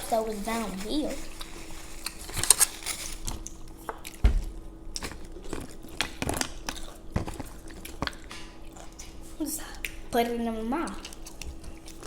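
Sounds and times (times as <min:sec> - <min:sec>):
chewing: 0:01.3 - 0:04.2, 0:04.9 - 0:10.0, 0:10.9 - 0:12.0.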